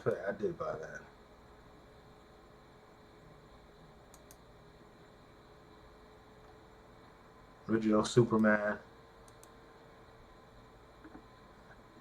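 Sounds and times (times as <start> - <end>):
faint electrical hum: 0.0 - 12.0
faint clicks: 4.1 - 4.5, 9.2 - 9.6.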